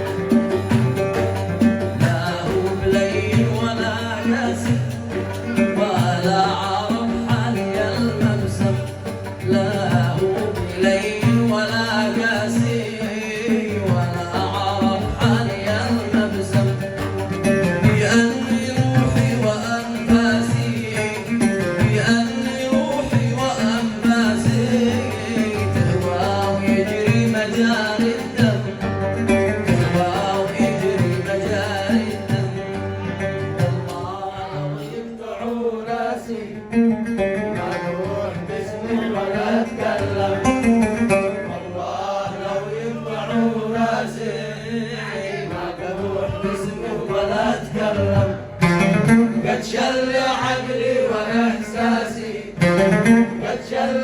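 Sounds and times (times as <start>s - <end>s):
percussion beat: 0.0s - 34.9s
rhythmic accompaniment: 0.0s - 35.3s
plucked string instruments: 0.0s - 54.0s.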